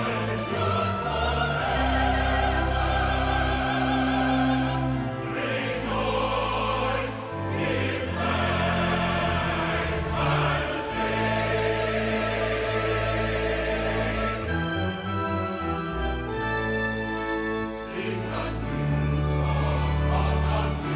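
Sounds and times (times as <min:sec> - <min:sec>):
choir singing with orchestra: 0:00.0 - 0:20.9.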